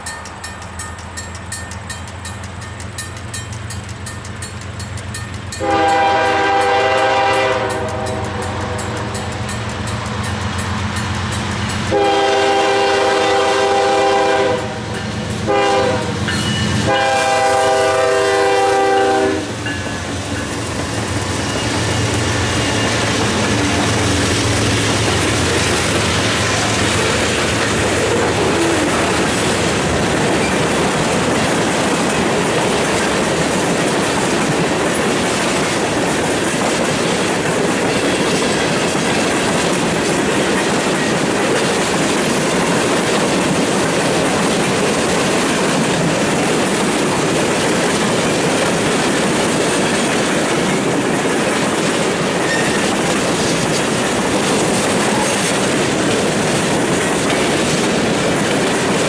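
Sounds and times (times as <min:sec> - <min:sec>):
freight train rolling on rails: 0:00.0 - 0:59.0
locomotive air horn blasts: 0:05.6 - 0:09.1, 0:11.9 - 0:19.6.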